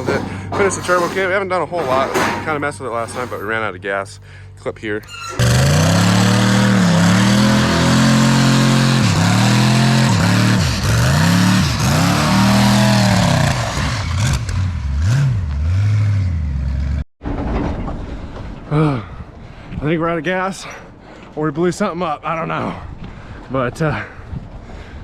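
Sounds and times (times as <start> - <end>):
engine revving at high revs: 5.4 - 16.9.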